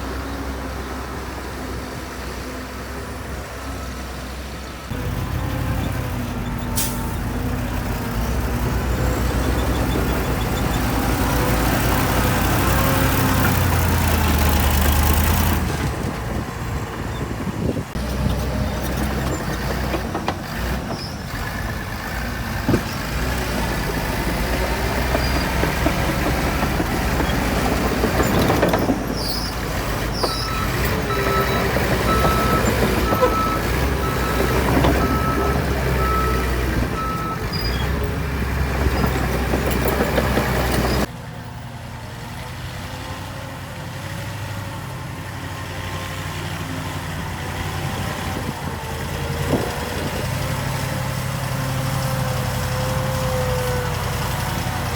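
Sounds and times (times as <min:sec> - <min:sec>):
heavy diesel machinery engine drone: 0:00.0 - 0:54.9
reversing alarm beeping: 0:30.3 - 0:37.5.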